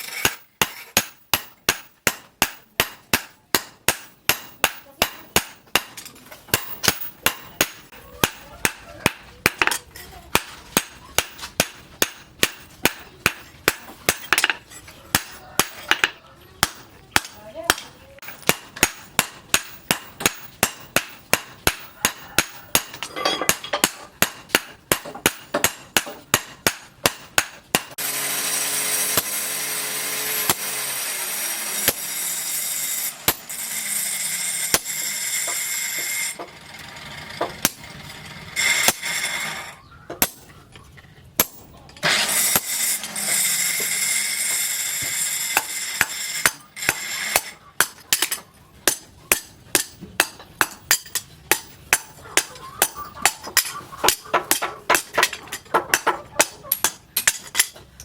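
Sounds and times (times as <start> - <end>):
loud machine noise: 28.0 - 39.8.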